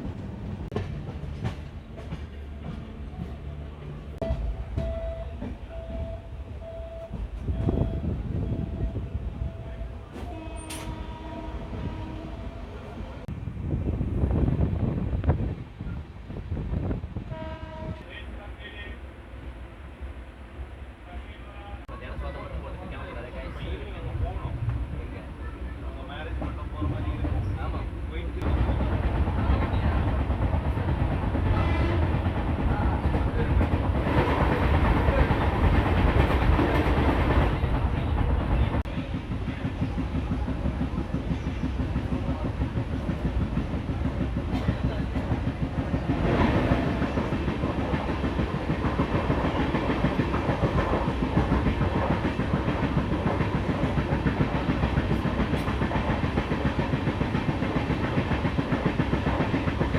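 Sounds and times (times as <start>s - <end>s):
train rumble: 0.0s - 59.9s.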